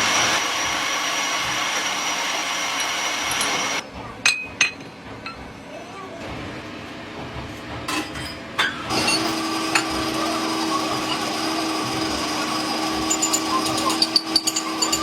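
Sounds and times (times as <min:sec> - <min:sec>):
power machine humming: 0:08.9 - 0:15.0.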